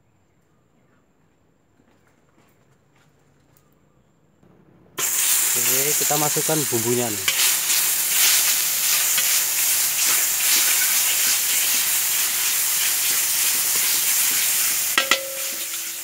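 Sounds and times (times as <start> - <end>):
spice paste sizzling in oil: 5.0 - 16.0
metal spatula scraping wok: 7.2 - 16.0
sharp knocks with ring: 15.0 - 15.7.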